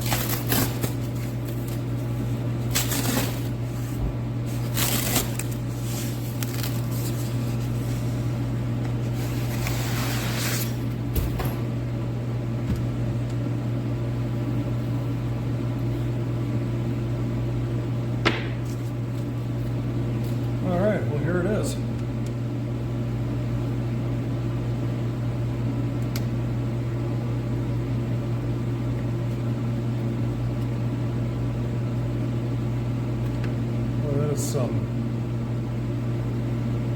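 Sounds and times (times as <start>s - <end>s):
packing foam rustling and scraping: 0.0s - 8.4s, 9.0s - 10.9s
heater humming: 0.0s - 36.9s.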